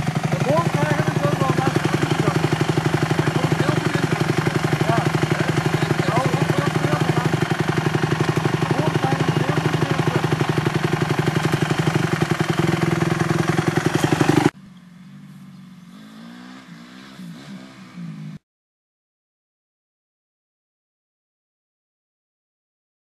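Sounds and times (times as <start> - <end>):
dirt bike engine running: 0.0 - 18.4.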